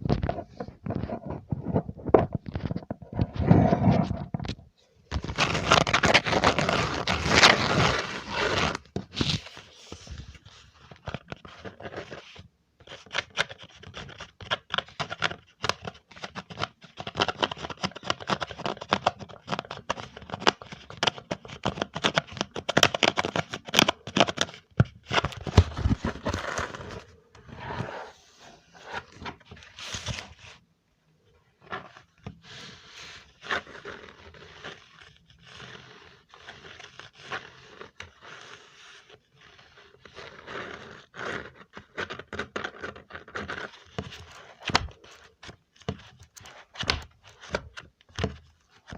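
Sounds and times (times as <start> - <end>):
close scratches crinkles and clicks: 0.0 - 30.6, 31.4 - 48.9.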